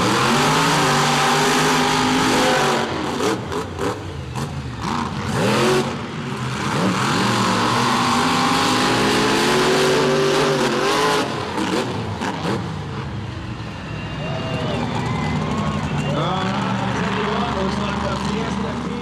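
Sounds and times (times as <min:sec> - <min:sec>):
monster truck engine revving: 0:00.0 - 0:19.0.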